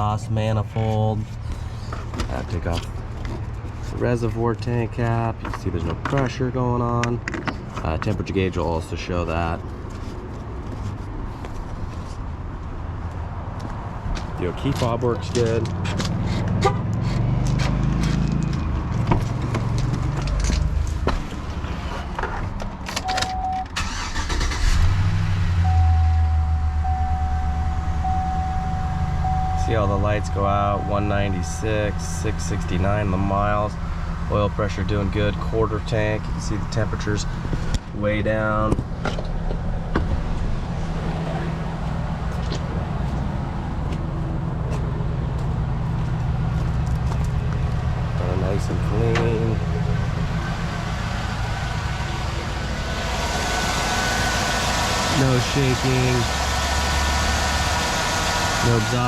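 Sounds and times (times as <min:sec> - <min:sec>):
pickup engine starting and idling: 0:23.0 - 0:37.8, 0:45.6 - 0:59.0
electronic chime tone: 0:25.6 - 0:31.6.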